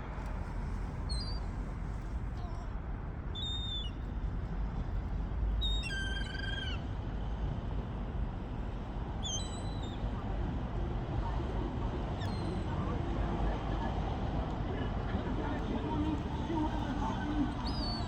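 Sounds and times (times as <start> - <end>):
steady low background noise: 0.0 - 18.0
gulls calling: 5.7 - 6.8, 15.4 - 18.0.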